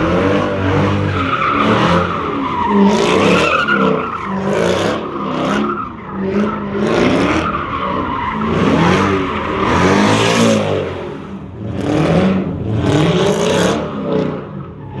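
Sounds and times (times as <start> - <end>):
car engine revving: 0.0 - 14.6.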